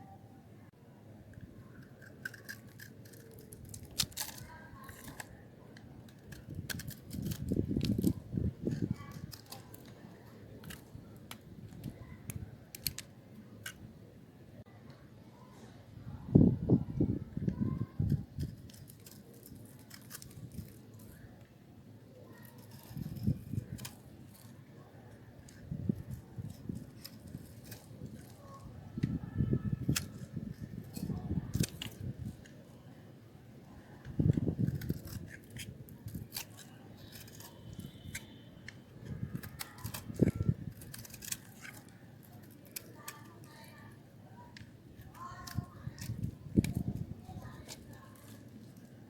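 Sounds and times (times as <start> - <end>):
knife cutting hard soap: 1.8 - 13.8, 22.2 - 32.6, 34.0 - 49.0.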